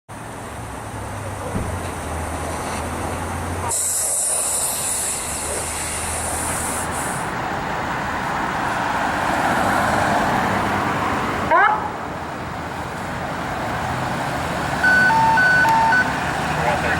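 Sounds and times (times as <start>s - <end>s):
fire engine rumbling: 0.1s - 16.9s
road noise: 0.1s - 16.9s
loud hiss: 3.7s - 7.4s.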